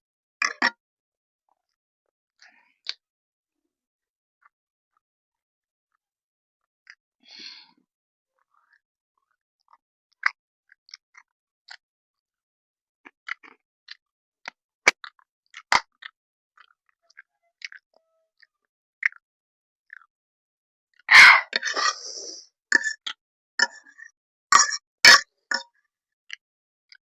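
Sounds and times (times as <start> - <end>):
person chewing noodles: 13.0 - 19.2, 19.9 - 20.1.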